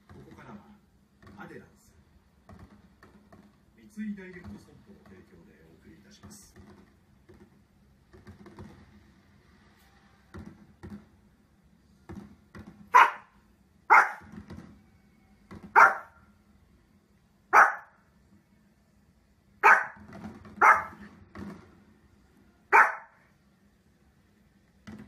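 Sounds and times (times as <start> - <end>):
small dog barking: 12.9 - 14.3, 15.7 - 16.2, 17.5 - 18.0, 19.6 - 20.0, 20.6 - 21.0, 22.7 - 23.2.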